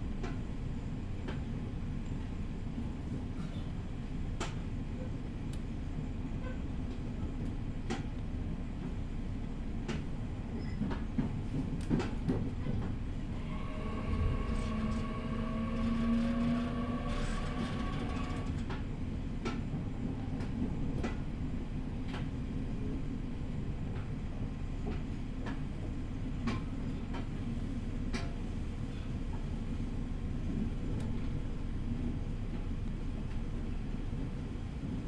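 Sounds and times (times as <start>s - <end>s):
train wheels rumbling on rail: 7.8s - 35.0s
traction motors whining: 12.9s - 18.8s
track clicks: 13.2s - 18.8s.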